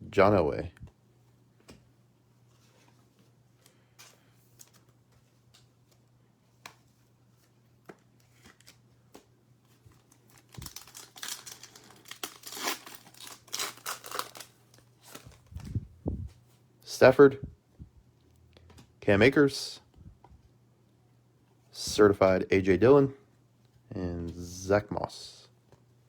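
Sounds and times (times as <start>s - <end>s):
card pack wrapper tearing and crinkling: 10.0s - 15.8s.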